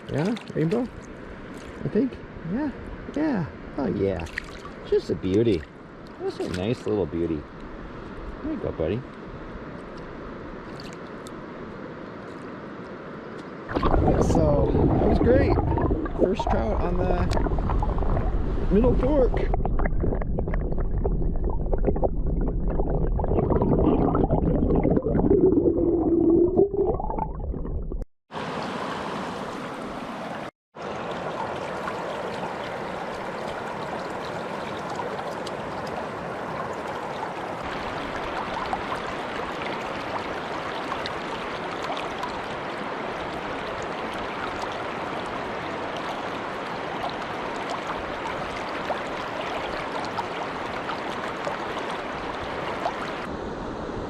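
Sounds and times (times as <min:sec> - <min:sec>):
muffled underwater gurgling: 0:13.7 - 0:28.0
river rushing: 0:28.4 - 0:54.0.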